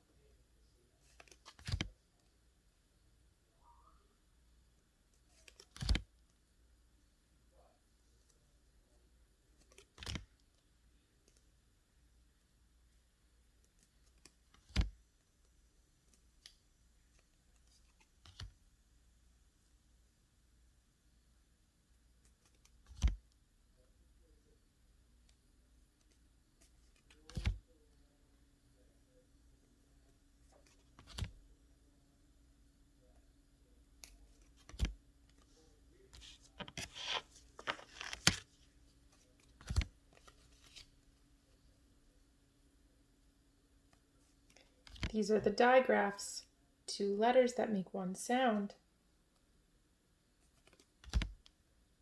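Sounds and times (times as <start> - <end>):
small clicks and ticks of cards: 1.1 - 1.9, 9.6 - 10.6, 16.1 - 18.6, 22.2 - 23.2, 30.5 - 31.4, 34.0 - 35.5, 39.1 - 40.9, 43.9 - 45.1, 50.5 - 51.6
cards knocking and tapping: 30.6 - 31.4, 36.2 - 38.5, 50.6 - 51.5
paper rustling and scraping: 36.2 - 40.8.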